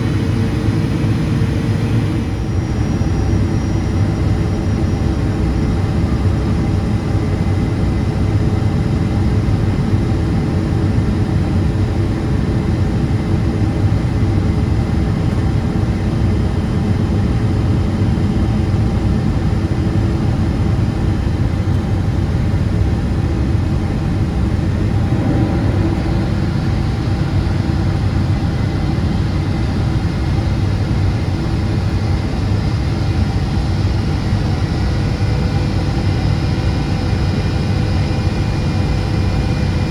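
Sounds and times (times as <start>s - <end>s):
airplane cabin rumble: 0.0s - 3.2s, 23.4s - 39.9s.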